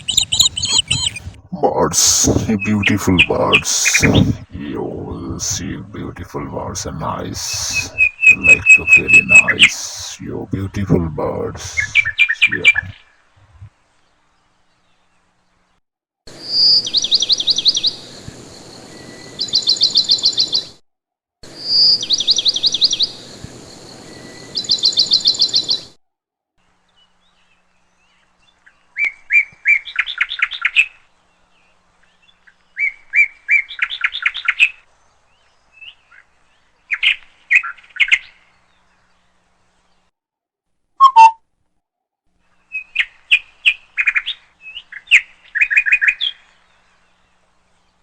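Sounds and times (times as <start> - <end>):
songbird singing trills: 0.0 - 1.5, 7.8 - 9.6, 24.0 - 25.9
steady hiss: 1.6 - 12.9, 17.2 - 20.6, 22.4 - 25.8.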